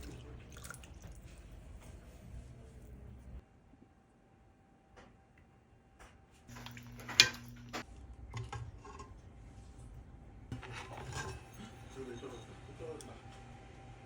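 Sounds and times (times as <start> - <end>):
dishes and utensils clattering: 10.5 - 12.6.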